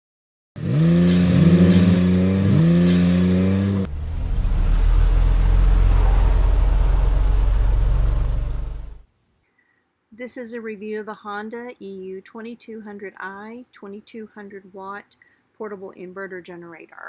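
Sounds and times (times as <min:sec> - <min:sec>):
engine revving: 0:00.6 - 0:09.0
low engine rumble: 0:03.4 - 0:09.0.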